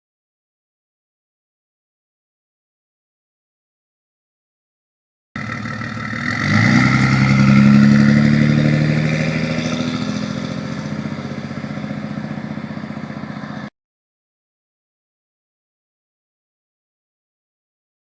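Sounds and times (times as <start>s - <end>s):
diesel engine revving: 5.4s - 13.7s.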